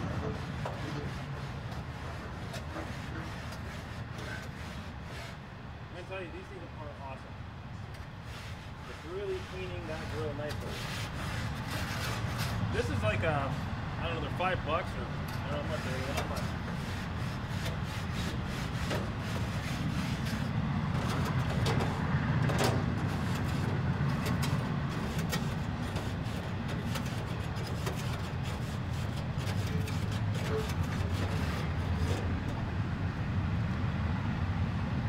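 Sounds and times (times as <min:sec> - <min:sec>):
train rumble: 0:00.0 - 0:35.0
clicks and scrapes: 0:00.2 - 0:05.4, 0:08.0 - 0:12.6, 0:15.3 - 0:32.6
people talking: 0:06.0 - 0:07.3, 0:08.9 - 0:10.8, 0:12.7 - 0:16.5.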